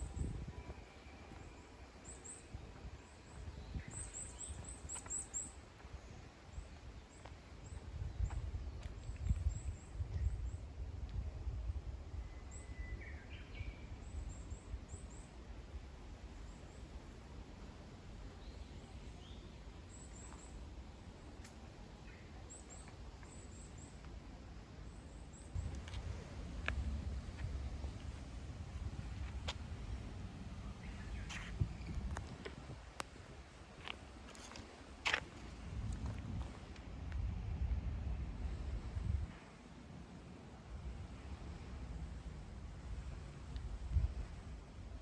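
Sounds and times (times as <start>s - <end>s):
low outdoor rumble: 0.0s - 39.4s
small birds chirping: 0.1s - 10.6s, 18.3s - 24.1s.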